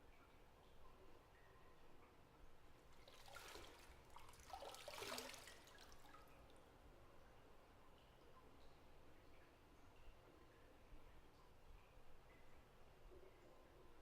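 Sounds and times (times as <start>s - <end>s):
bath water splashing: 3.1s - 6.2s.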